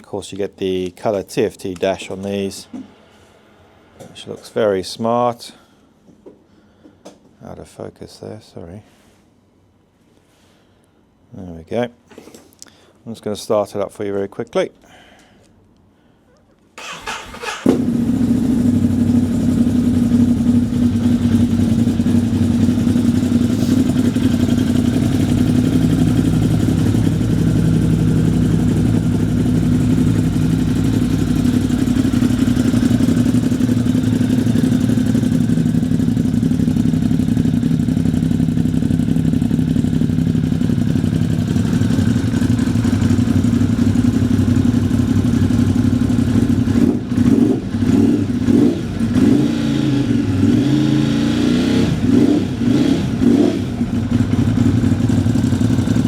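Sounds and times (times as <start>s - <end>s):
electric starter cranking: 16.8s - 18.2s
motorcycle engine idling: 16.9s - 49.2s, 52.0s - 56.0s.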